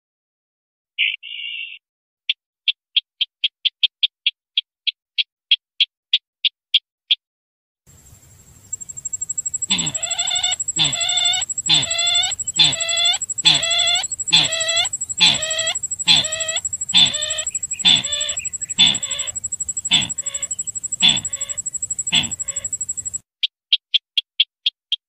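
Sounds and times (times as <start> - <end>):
faint high whine: 7.9 - 23.2
hoarse fowl-like bird call: 9.5 - 23.2.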